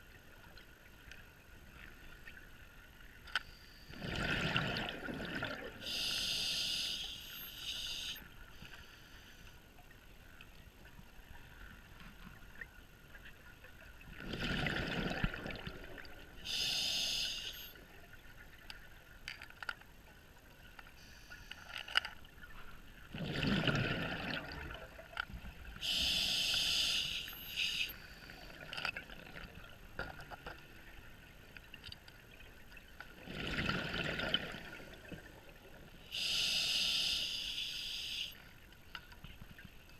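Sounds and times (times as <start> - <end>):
exhaled bubbles rushing: 4.0 - 5.8, 14.2 - 16.2, 23.1 - 25.0, 33.2 - 35.2
regulator hiss on inhale: 5.8 - 9.6, 16.4 - 17.8, 21.0 - 21.9, 25.8 - 28.5, 36.1 - 38.4.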